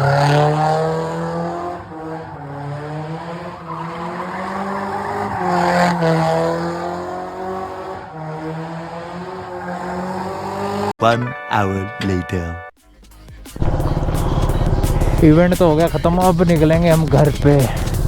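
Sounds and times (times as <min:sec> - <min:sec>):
car engine revving hard: 0:00.0 - 0:10.9, 0:13.6 - 0:17.0
tyres squealing: 0:02.1 - 0:06.6.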